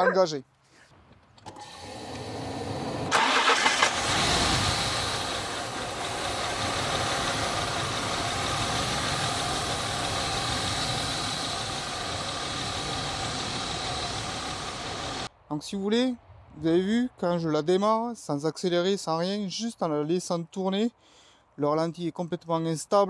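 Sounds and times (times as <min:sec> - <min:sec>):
car engine cranking and idling: 0:01.4 - 0:15.3.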